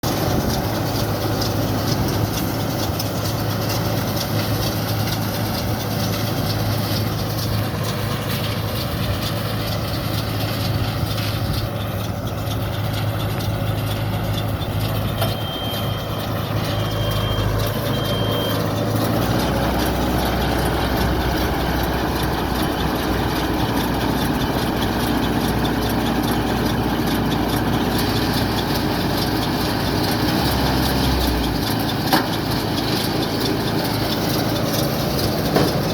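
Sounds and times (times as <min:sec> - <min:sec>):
round baler working: 0:00.0 - 0:35.9
tractor engine running: 0:00.0 - 0:35.9
short high beeps: 0:15.2 - 0:18.7.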